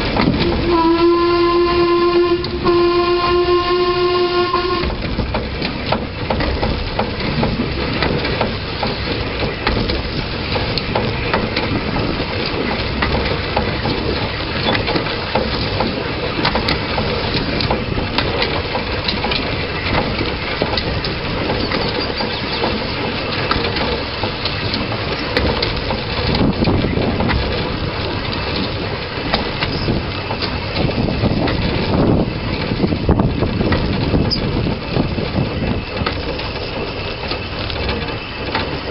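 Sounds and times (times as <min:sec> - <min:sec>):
sharp clicks and knocks: 0:00.0 - 0:01.0, 0:04.4 - 0:38.9
train wheels rattling on rails: 0:00.0 - 0:38.9.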